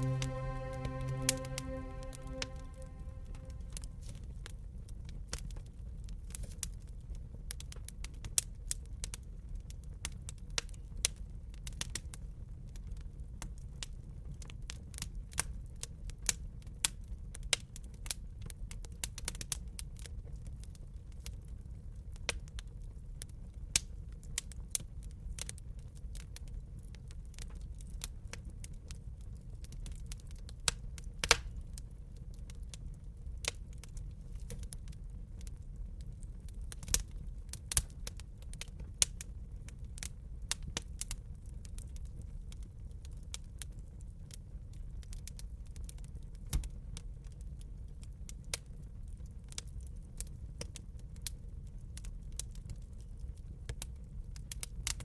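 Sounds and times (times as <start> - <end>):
low steady rumble: 0.0 - 3.8
wood fire crackling and popping: 33.4 - 55.0.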